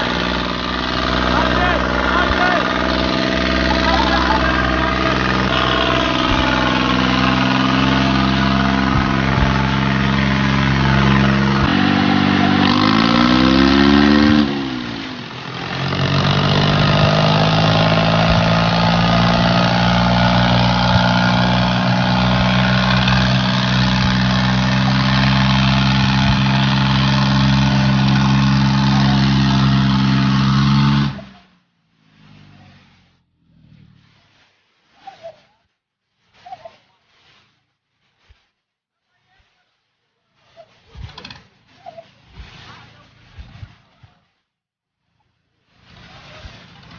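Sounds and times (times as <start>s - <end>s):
diesel tractor engine running: 0.0s - 34.0s.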